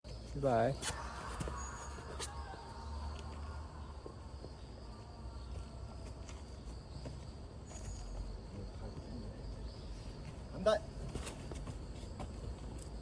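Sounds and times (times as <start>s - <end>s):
insects chirring: 0.1s - 13.0s
faint taps and scuffs: 10.1s - 13.0s.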